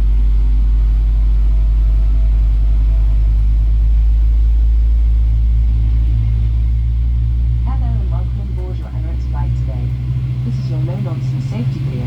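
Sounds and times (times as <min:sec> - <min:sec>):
aircraft engines rumbling in cabin: 0:00.0 - 0:12.0.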